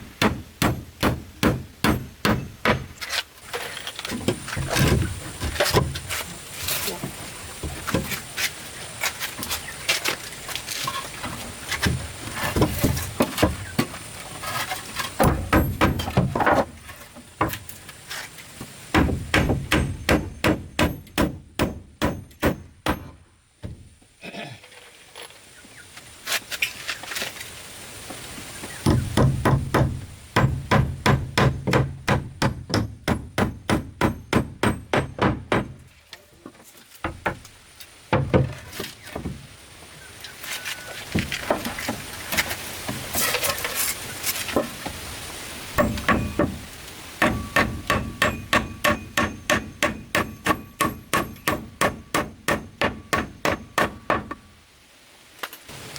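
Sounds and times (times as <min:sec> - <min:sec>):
hand tool striking wood: 0:00.1 - 0:03.2, 0:04.2 - 0:06.9, 0:15.0 - 0:16.7, 0:18.9 - 0:23.8, 0:28.8 - 0:35.8, 0:45.8 - 0:46.6, 0:47.2 - 0:54.4.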